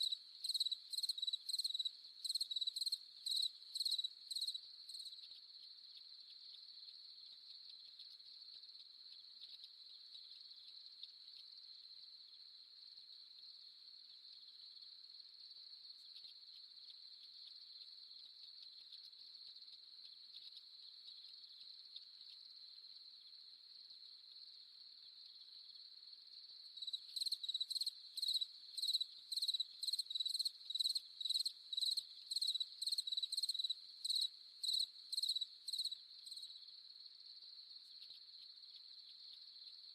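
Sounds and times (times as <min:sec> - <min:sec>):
loud cricket chirping in pulses: 0:25.3 - 0:39.9
crickets trilling: 0:26.6 - 0:36.8.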